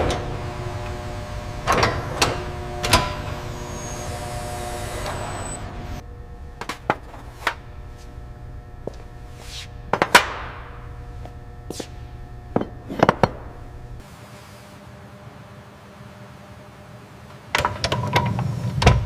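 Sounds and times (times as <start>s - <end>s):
whirring hiss: 0.0s - 6.0s
machinery hum: 0.0s - 19.0s.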